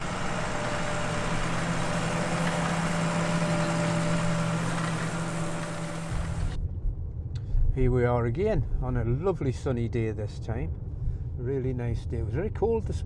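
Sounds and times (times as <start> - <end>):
vehicle engine running: 0.0 - 7.1.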